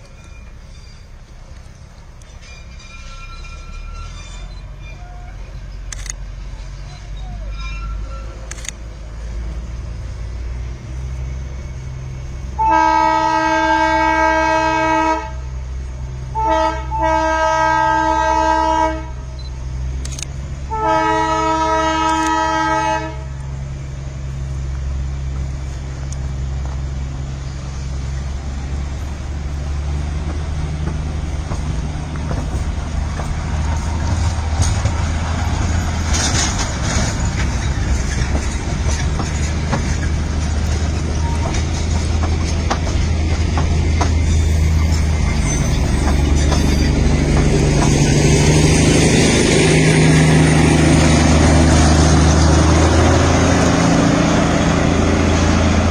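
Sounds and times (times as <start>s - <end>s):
train running rumble: 0.0s - 55.9s
train horn blasts: 12.6s - 15.6s, 16.3s - 19.3s, 20.7s - 23.4s.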